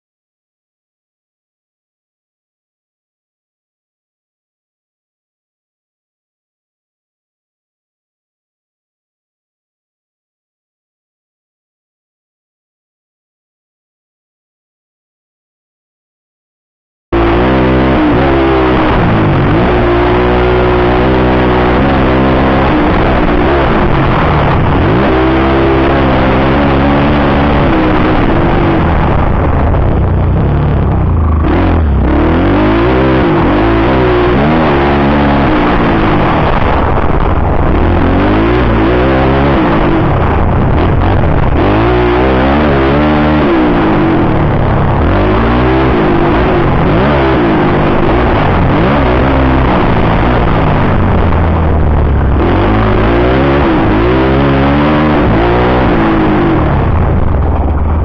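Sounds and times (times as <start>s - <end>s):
motocross bike engine revving: 17.2s - 58.0s.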